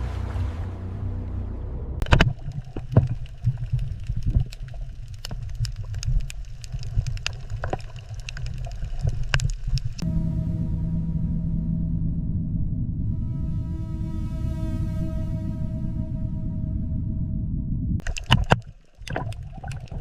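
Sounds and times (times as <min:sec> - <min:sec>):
underwater low rumble: 0:00.0 - 0:20.0
irregular clicks and pops: 0:02.0 - 0:10.0, 0:18.0 - 0:20.0.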